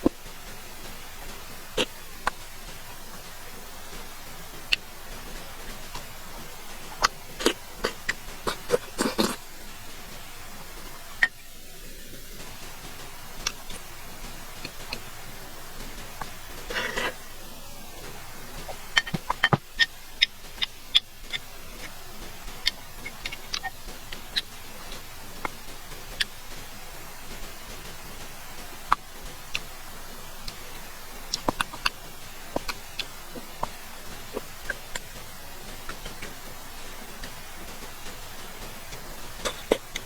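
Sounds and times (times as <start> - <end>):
chewing clicks and smacks: 3.9 - 10.0, 18.1 - 26.7, 30.3 - 40.0.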